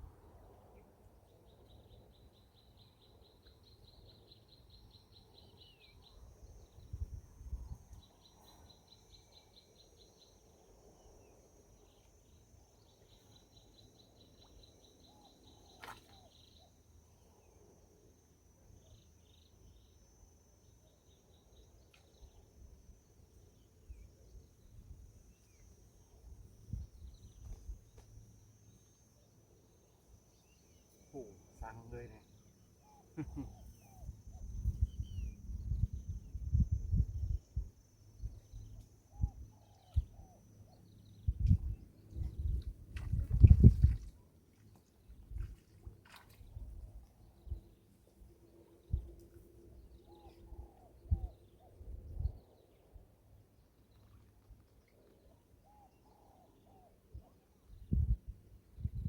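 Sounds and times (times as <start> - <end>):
pulsed insect trills: 2.1 - 44.1.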